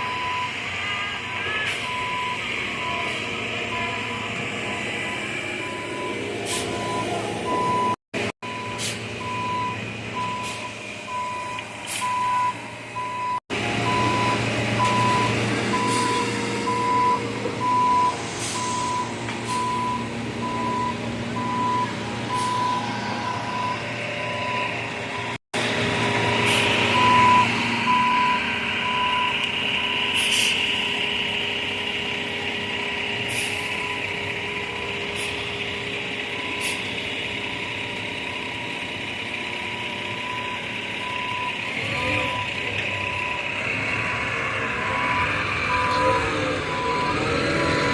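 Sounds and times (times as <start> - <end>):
reversing alarm beeping: 0.0 - 25.4, 26.0 - 32.0, 32.7 - 47.9
truck engine running: 0.0 - 47.9.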